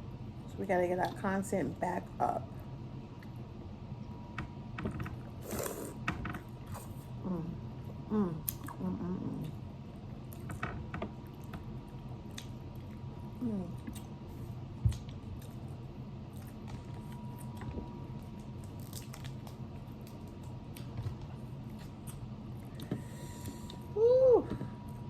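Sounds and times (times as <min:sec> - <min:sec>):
person humming with enjoyment: 0:07.2 - 0:09.5, 0:24.0 - 0:24.7.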